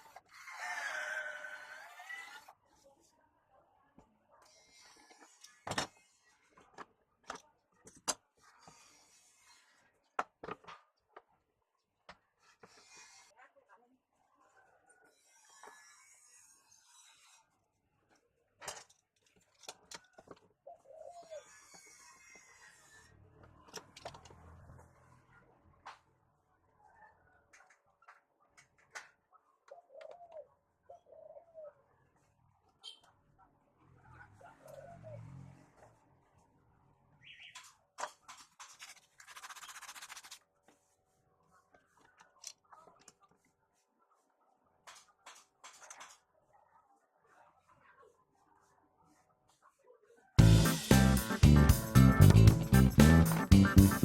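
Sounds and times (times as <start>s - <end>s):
faint dove cooing: 29.7s - 31.8s.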